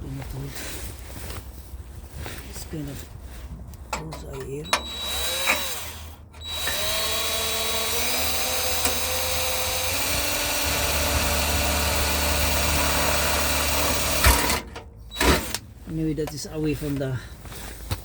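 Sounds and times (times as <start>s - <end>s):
power drill running: 4.7s - 15.6s.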